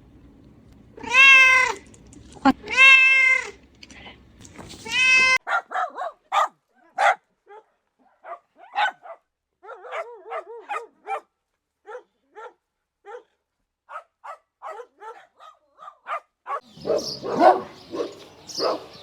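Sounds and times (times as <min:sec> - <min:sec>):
young animal crying: 0:00.9 - 0:05.4.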